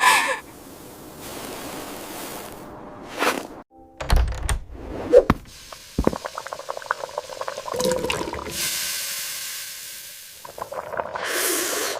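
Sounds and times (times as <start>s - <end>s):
small bubbling pops: 5.2s - 8.6s, 10.4s - 11.2s
steam hissing: 5.5s - 11.9s.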